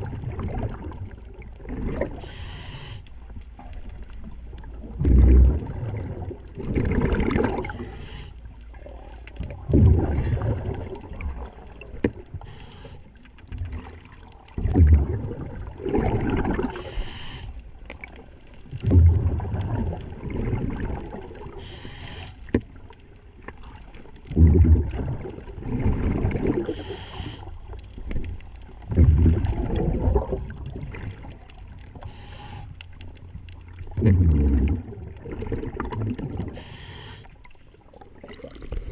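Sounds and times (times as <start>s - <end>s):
gurgling bubble noise: 0.0s - 2.2s, 4.5s - 7.8s, 9.3s - 12.3s, 13.6s - 16.9s, 18.0s - 21.6s, 23.8s - 26.8s, 28.1s - 31.9s, 33.7s - 36.6s, 37.8s - 38.9s
diver exhaling bubbles: 5.0s - 7.9s, 9.5s - 11.7s, 14.6s - 17.0s, 18.8s - 21.6s, 24.3s - 27.2s, 28.9s - 31.3s, 33.9s - 37.2s, 38.2s - 38.9s.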